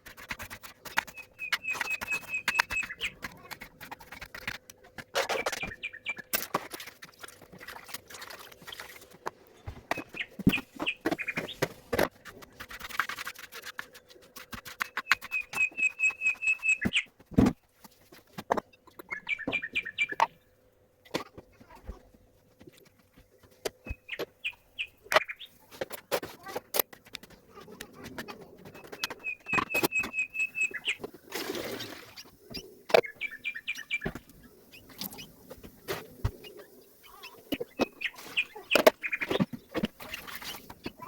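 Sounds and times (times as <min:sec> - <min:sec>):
small bird chirping: 0:00.8 - 0:03.6, 0:05.4 - 0:06.3, 0:09.9 - 0:11.6, 0:14.8 - 0:17.1, 0:18.9 - 0:20.4, 0:23.8 - 0:25.6, 0:28.7 - 0:31.1, 0:32.2 - 0:35.4, 0:36.4 - 0:41.0.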